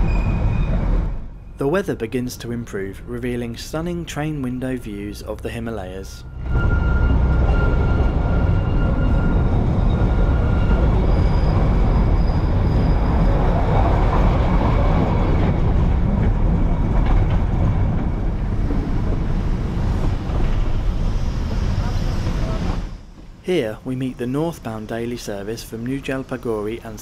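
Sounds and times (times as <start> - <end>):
faint high squeal: 0.0 - 0.8, 6.2 - 13.6
train wheels rumbling on track: 0.0 - 27.0.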